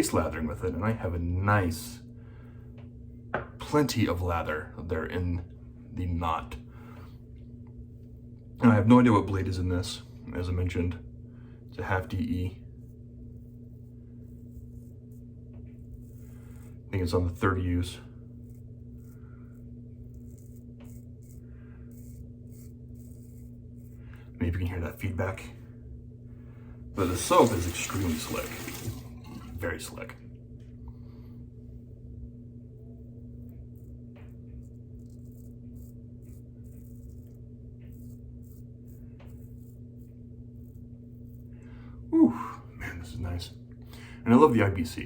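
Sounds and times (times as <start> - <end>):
razor scraping stubble: 13.3 - 24.1, 27.0 - 29.0, 33.4 - 41.5
laundry machines humming: 27.0 - 30.1.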